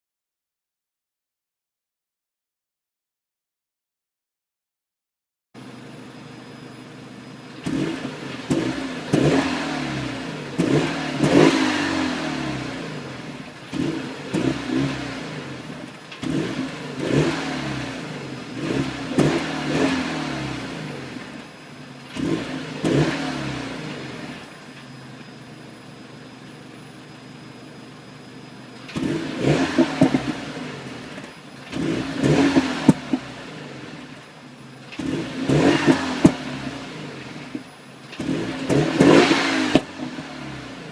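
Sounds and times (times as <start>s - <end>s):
car engine revving: 7.5s - 27.0s, 28.7s - 40.9s
exhaust pops and crackles: 29.7s - 30.5s, 31.1s - 33.4s, 34.8s - 36.5s.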